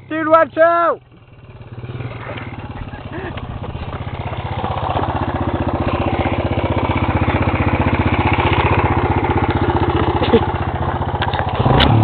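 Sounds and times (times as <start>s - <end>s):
dirt bike engine putter: 11.1s - 12.0s.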